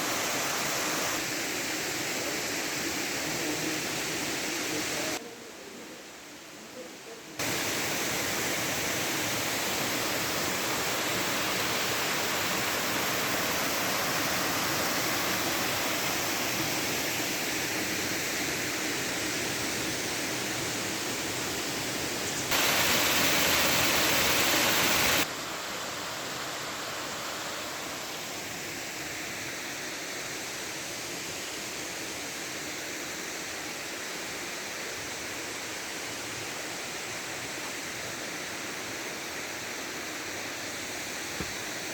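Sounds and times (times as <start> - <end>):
waterfall rushing: 0.0 - 5.2, 7.4 - 29.5.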